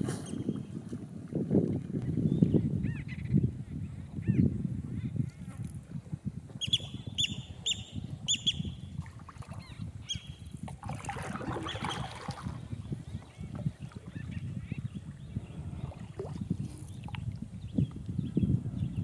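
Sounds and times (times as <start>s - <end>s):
wind buffeting microphone: 0.0s - 19.0s
waterbird sharp calls: 11.1s - 12.5s.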